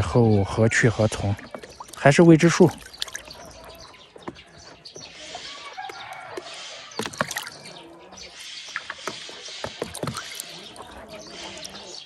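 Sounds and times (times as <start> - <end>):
duck splashing in water: 1.4 - 3.9, 5.4 - 12.0.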